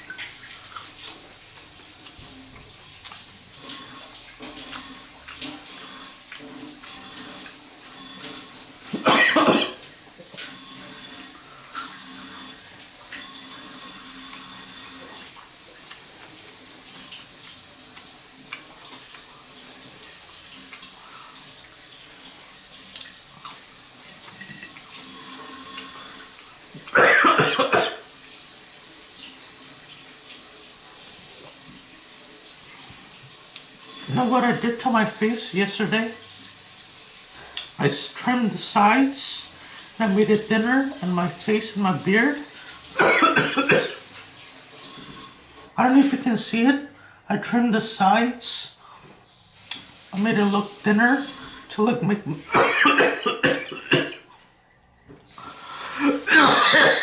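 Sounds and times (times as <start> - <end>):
person chewing with wet mouth sounds: 0.1 - 8.5, 13.2 - 27.0
rough cough-like burst: 9.0 - 9.8, 26.9 - 28.0, 43.0 - 44.0, 52.5 - 54.2, 56.0 - 57.0.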